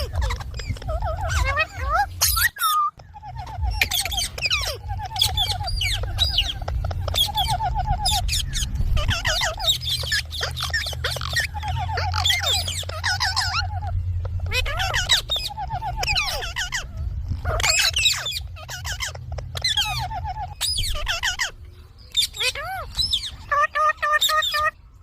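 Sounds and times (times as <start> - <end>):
parrots chattering and chirping: 0.0 - 25.0
steady low hum: 3.0 - 22.2.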